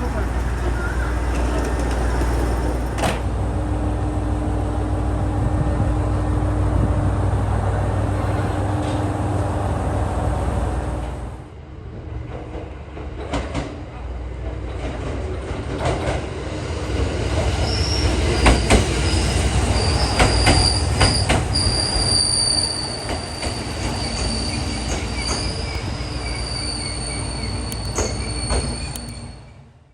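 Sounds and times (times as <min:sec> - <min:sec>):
train wheels squealing on rails: 0:00.0 - 0:03.2, 0:17.0 - 0:29.7
wheels clacking over rail joints: 0:00.0 - 0:03.4, 0:17.0 - 0:29.4
train rumble: 0:00.0 - 0:29.9.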